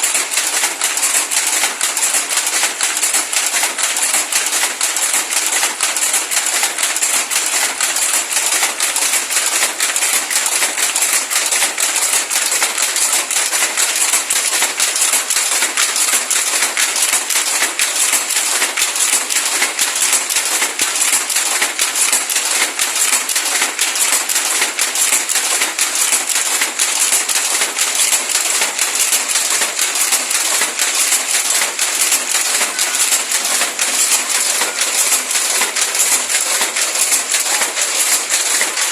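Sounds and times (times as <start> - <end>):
weaving loom clattering: 0.0 - 38.9.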